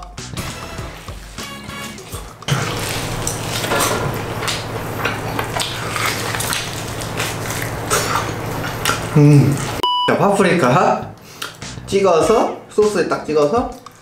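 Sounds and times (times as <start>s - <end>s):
chewing and tearing meat: 2.0s - 3.7s, 4.4s - 9.8s.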